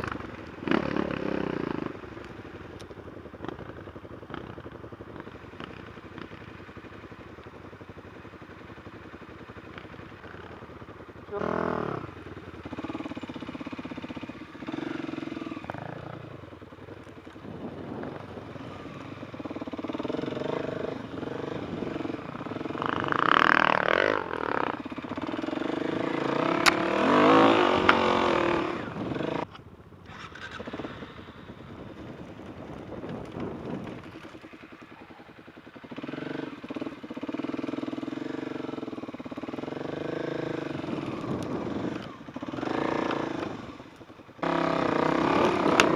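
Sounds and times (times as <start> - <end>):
dirt bike engine revving: 0.0 - 2.1, 11.3 - 16.6, 17.2 - 45.9.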